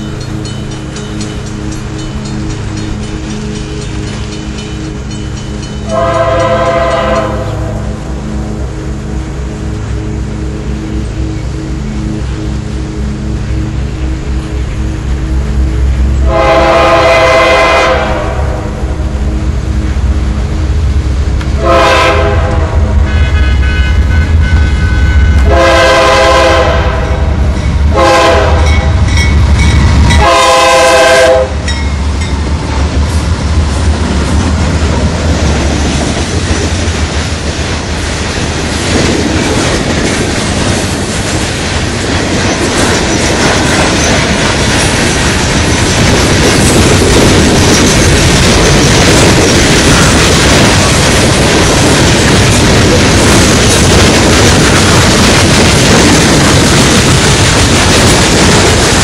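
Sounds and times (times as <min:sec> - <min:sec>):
train wheel clatter: 0:00.0 - 0:07.8, 0:27.4 - 0:59.0
locomotive engine rumble: 0:00.0 - 0:59.0
train horn blasts: 0:05.6 - 0:31.8.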